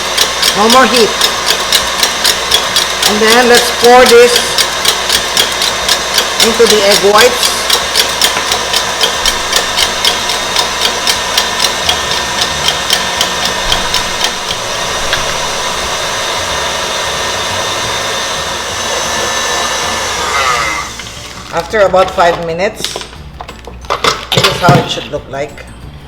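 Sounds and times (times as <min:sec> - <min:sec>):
regular ticking: 0:00.0 - 0:20.2
electric mixer whirring: 0:00.0 - 0:23.2.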